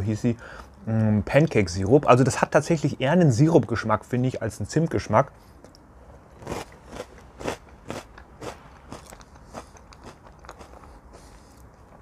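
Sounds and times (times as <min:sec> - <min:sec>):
person chewing crunchy cereal: 0:05.6 - 0:12.0.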